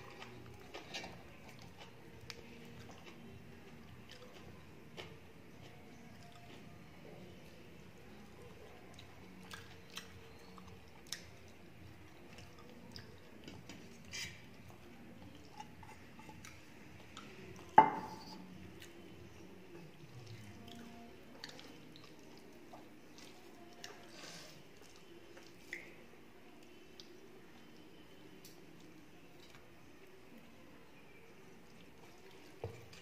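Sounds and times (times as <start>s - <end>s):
close chewing: 0.0s - 17.8s, 18.4s - 26.0s.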